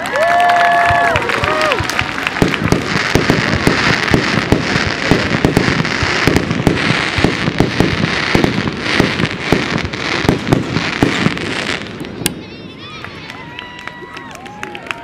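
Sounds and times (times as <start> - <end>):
fireworks popping and crackling: 0.0 - 15.0.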